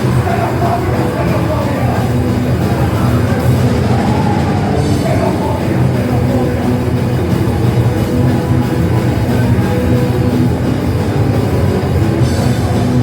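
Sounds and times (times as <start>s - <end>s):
drum kit: 0.0s - 13.0s
electric guitar: 0.0s - 13.0s.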